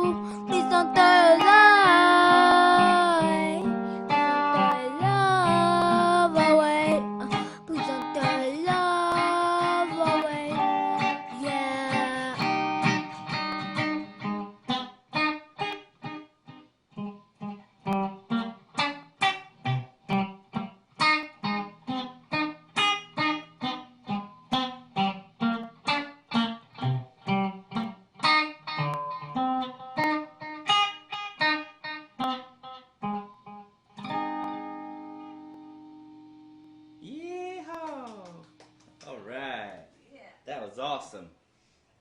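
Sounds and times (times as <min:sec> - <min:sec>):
plucked string instrument notes: 0:00.0 - 0:18.6, 0:19.3 - 0:37.0.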